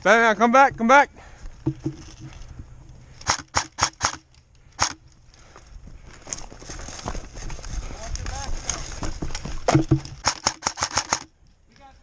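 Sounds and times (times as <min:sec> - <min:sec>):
airsoft gun shots: 0:03.2 - 0:04.2, 0:04.8 - 0:05.0, 0:09.7 - 0:11.3.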